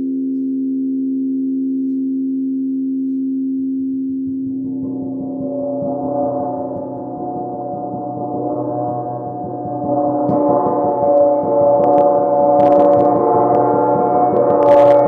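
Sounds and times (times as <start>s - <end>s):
gong ringing: 4.3s - 15.0s.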